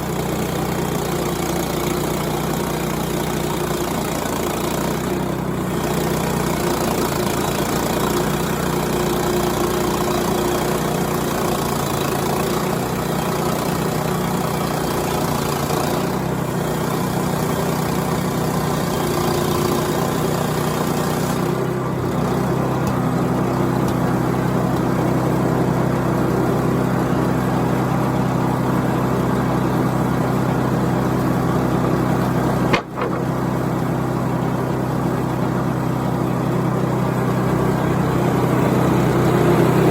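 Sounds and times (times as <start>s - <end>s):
sawmill gas engine running: 0.0s - 39.9s
band saw cutting log: 30.7s - 34.4s
sharp click: 32.7s - 33.4s.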